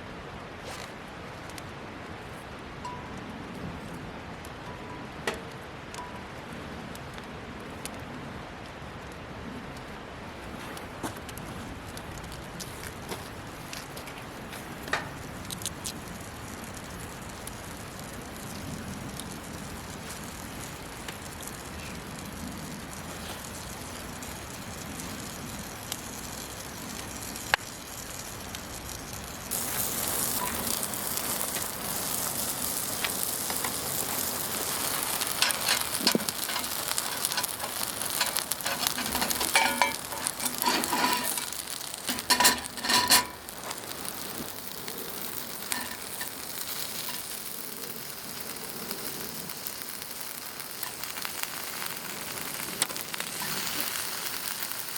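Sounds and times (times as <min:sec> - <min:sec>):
wood fire crackling: 0:00.0 - 0:54.9
meat sizzling in a skillet: 0:15.1 - 0:54.9.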